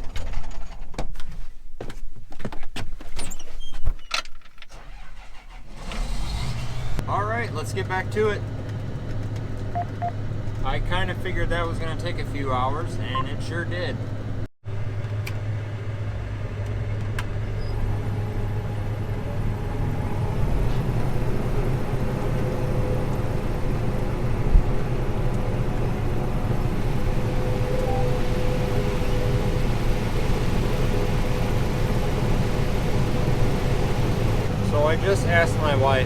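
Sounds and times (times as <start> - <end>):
harvester engine droning: 4.8 - 36.0
steady machine whine: 20.1 - 36.0.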